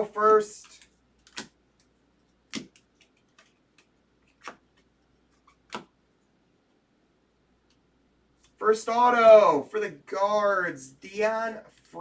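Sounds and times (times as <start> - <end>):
trading cards snapping: 0.6 - 1.9, 2.5 - 5.9.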